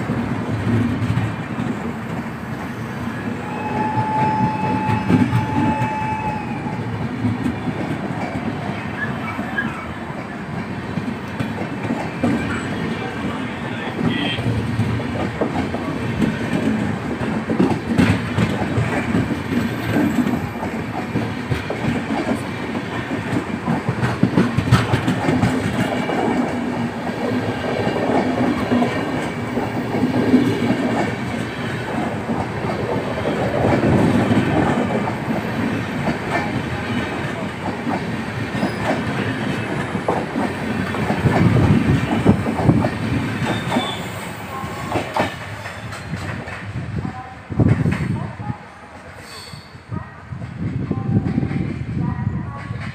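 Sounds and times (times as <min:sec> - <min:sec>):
train wheels clattering over rail joints: 0:14.5 - 0:44.2, 0:44.9 - 0:46.8.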